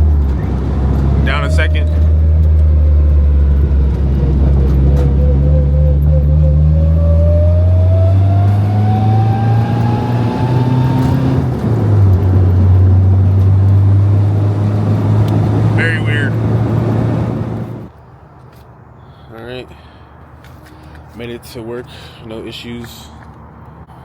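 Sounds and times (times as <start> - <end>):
transmission whine: 0.0 - 11.6
car engine running: 0.0 - 17.9.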